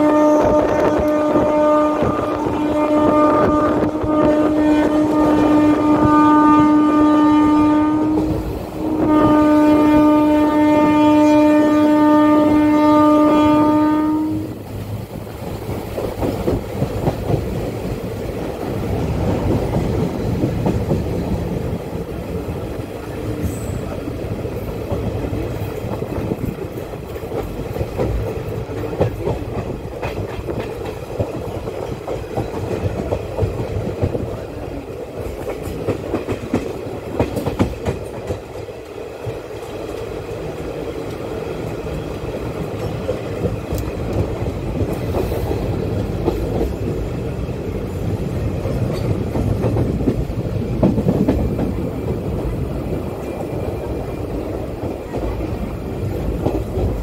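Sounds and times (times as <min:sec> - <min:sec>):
train horn blasts: 0:00.0 - 0:14.6
train wheels clattering on rails: 0:00.0 - 0:57.0.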